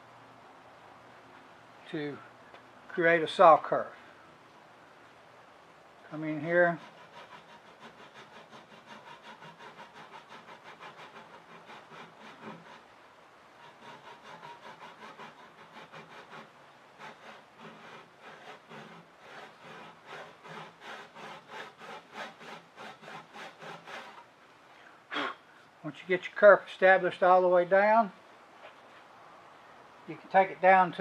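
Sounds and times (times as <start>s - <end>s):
handsaw rasping through wood: 6.4s - 12.9s, 13.6s - 24.2s.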